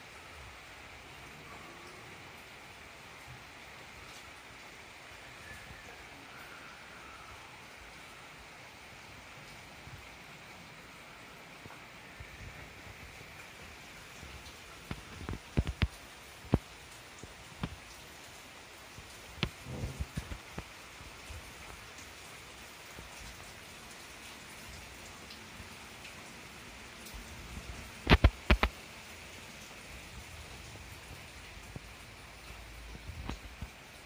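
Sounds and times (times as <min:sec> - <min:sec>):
steady rain hissing: 0:00.0 - 0:34.0
large raindrops tapping: 0:09.4 - 0:34.0.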